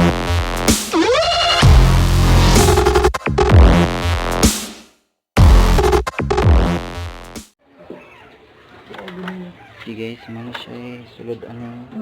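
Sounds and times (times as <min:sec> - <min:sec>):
electronic music with heavy bass: 0:00.0 - 0:04.7, 0:05.4 - 0:07.4.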